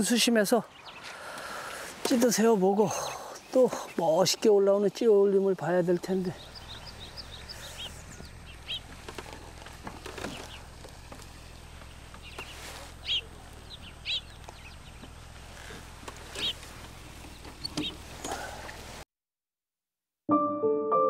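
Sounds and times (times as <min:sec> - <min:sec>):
low outdoor background: 0:00.0 - 0:19.0.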